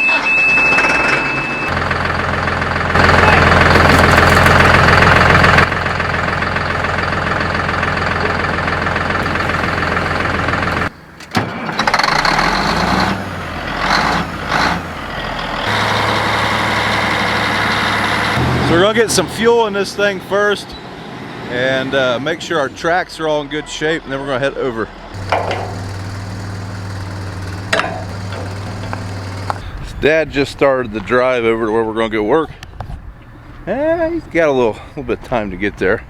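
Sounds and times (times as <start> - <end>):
heavy diesel engine running: 0.0 - 20.4, 25.1 - 30.7.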